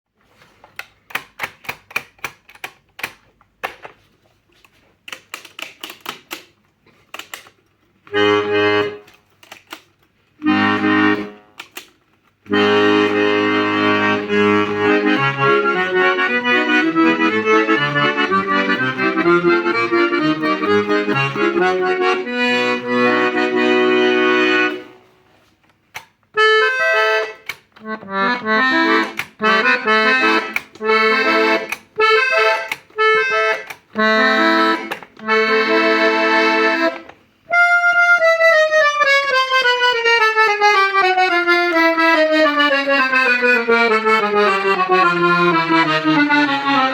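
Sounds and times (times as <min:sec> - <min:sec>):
accordion key clicks: 0:00.8 - 0:03.9, 0:05.1 - 0:13.3, 0:14.2 - 0:23.7, 0:25.6 - 0:46.9
accordion playing: 0:08.0 - 0:09.3, 0:10.3 - 0:11.8, 0:12.4 - 0:25.5, 0:26.3 - 0:46.9.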